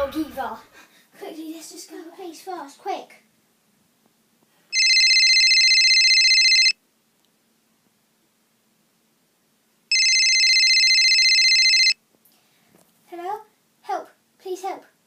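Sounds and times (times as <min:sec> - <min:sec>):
electronic telephone ringing: 0:04.7 - 0:06.8, 0:09.9 - 0:12.0.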